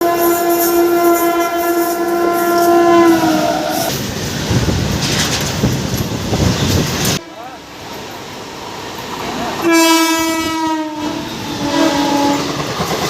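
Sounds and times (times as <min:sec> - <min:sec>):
train horn blast: 0:00.0 - 0:03.9, 0:07.1 - 0:07.6, 0:09.6 - 0:12.6
train wheels rumbling on rails: 0:00.0 - 0:13.0.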